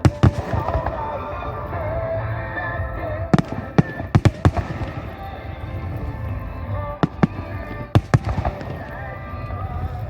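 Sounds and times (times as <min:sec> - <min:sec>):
fireworks shells bursting: 0:00.0 - 0:10.0
melody over loudspeakers: 0:00.0 - 0:10.0.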